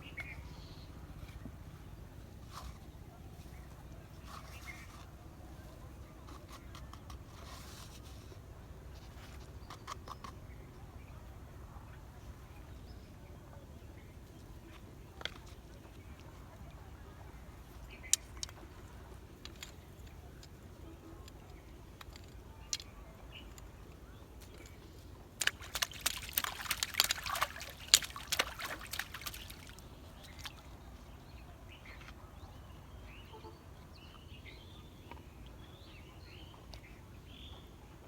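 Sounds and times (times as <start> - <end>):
water splashing and sloshing: 24.5 - 31.0.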